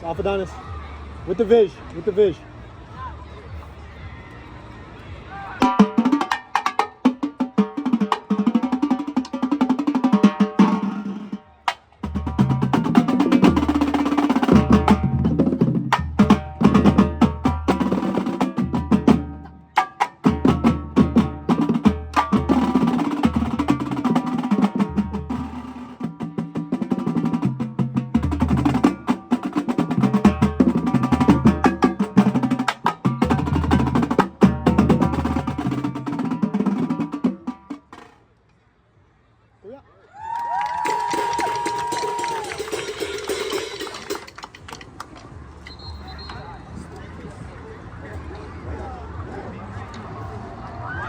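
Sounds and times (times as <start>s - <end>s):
snare drum strokes and rolls: 5.6s - 38.2s, 40.6s - 45.1s
bass drums: 12.0s - 37.7s.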